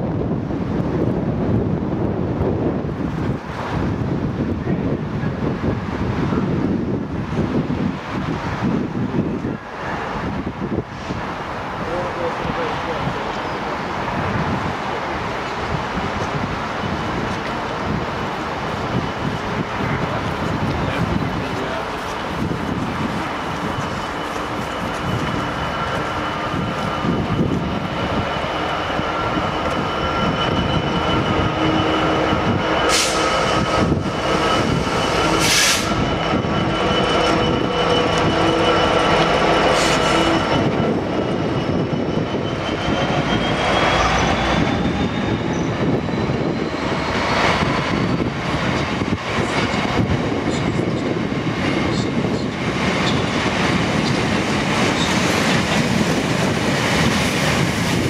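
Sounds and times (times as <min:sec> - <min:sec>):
diesel locomotive engine: 0:00.0 - 0:58.0
wheels squealing: 0:18.7 - 0:58.0.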